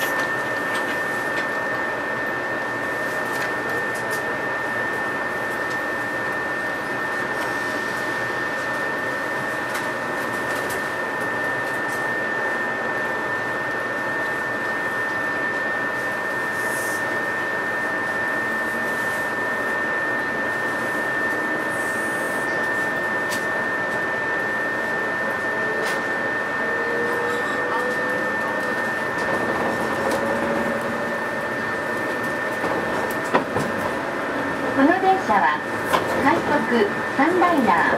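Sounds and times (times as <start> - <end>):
faint whine rising in pitch: 11.0 - 33.3
constant high tone: 16.0 - 32.8
train cabin rumble and hiss: 20.5 - 37.9.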